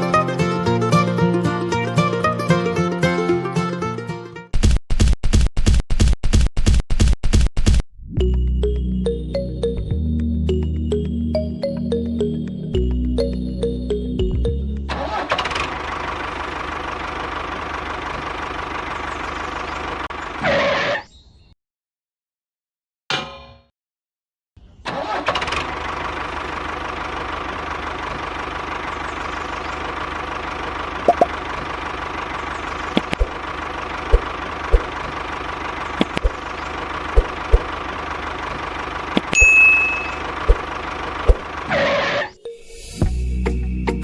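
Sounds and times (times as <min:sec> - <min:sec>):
small engine running: 0:14.8 - 0:20.4, 0:25.0 - 0:42.3.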